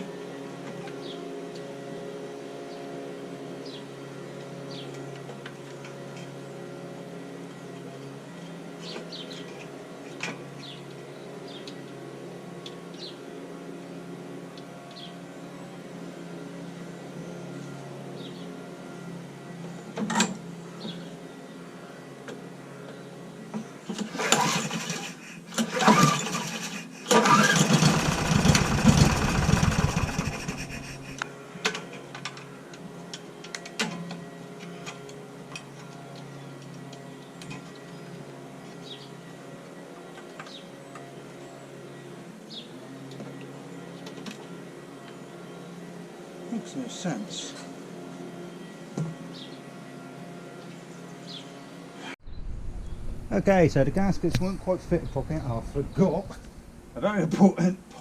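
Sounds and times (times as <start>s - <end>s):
small birds chirping: 8.8s - 9.7s, 10.6s - 11.9s, 14.9s - 15.2s, 18.2s - 18.6s, 20.6s - 21.9s, 37.2s - 39.2s, 48.5s - 49.6s, 50.6s - 56.9s
steady background hum: 14.8s - 32.8s, 50.4s - 58.0s
lawnmower engine turning over: 22.3s - 37.9s.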